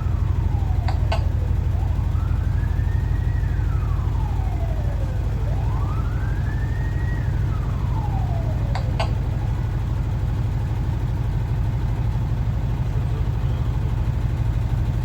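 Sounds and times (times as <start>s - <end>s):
siren wailing: 0.0s - 12.9s
bus engine running under load: 0.0s - 15.0s.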